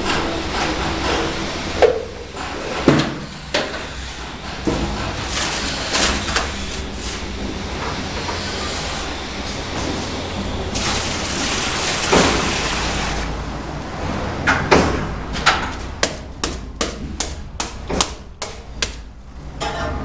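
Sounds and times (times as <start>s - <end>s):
trowel knocking and tapping: 16.0s - 19.0s.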